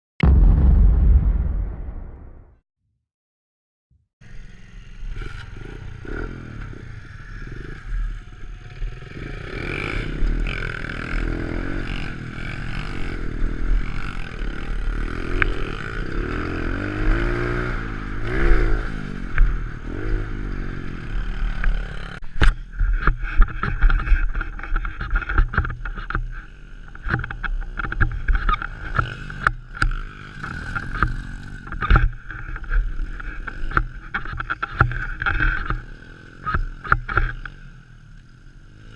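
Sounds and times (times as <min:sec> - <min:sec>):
pit bike engine revving: 0:04.3 - 0:38.9
knocks and clatter: 0:22.4 - 0:35.8.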